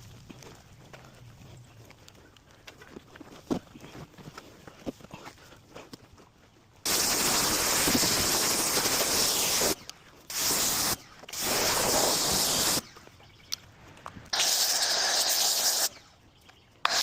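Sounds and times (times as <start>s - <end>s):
pressurised spray hissing: 6.9s - 12.8s, 14.3s - 16.0s.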